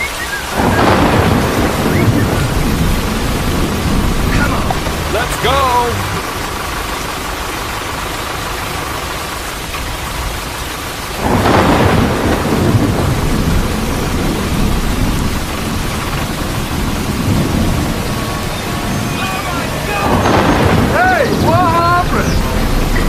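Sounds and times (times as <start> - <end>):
rain hiss: 0.0 - 23.0
thunder rumbling: 0.0 - 23.0.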